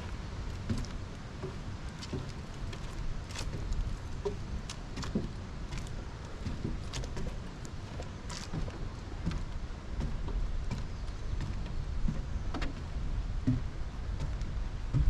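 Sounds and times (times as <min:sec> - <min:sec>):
footsteps walking: 0:00.0 - 0:12.8
steady low rumble: 0:00.0 - 0:15.0.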